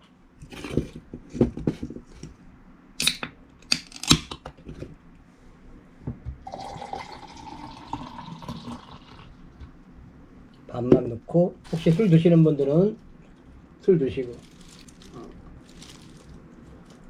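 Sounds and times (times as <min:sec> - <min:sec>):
liquid pouring into a glass: 0:06.5 - 0:09.3.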